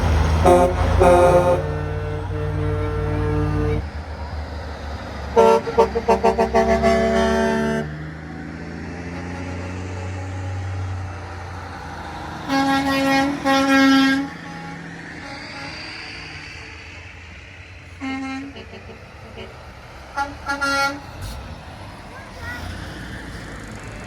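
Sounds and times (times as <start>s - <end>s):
diesel truck engines rumbling: 0.0s - 24.0s
truck air horn blasts: 0.4s - 4.0s, 5.3s - 8.1s, 9.0s - 11.1s, 12.4s - 16.5s, 18.0s - 21.5s.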